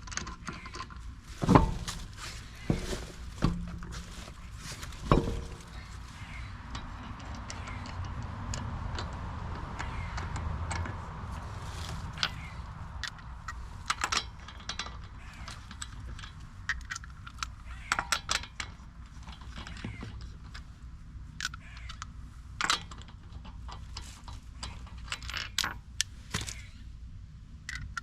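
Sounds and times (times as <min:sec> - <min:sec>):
steady low rumble: 0:00.0 - 0:17.9
lug nuts clicking and clinking: 0:00.0 - 0:26.7.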